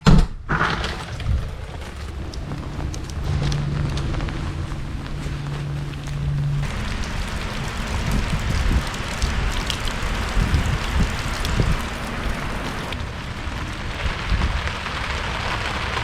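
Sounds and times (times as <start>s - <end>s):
low rumbling bumps: 0.0s - 16.0s
rain hissing: 0.6s - 16.0s
sharp drip ticks: 6.6s - 13.1s.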